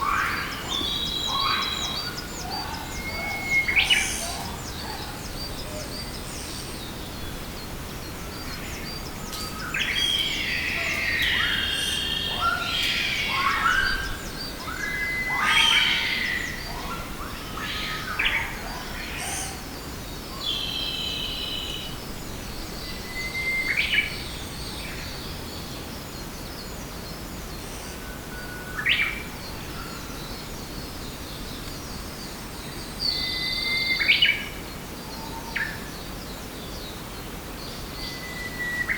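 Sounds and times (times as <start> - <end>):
birds chirping and whistling: 0.0 - 19.7, 20.4 - 25.2, 32.2 - 34.6, 37.6 - 38.9
steady background hiss: 0.0 - 38.9.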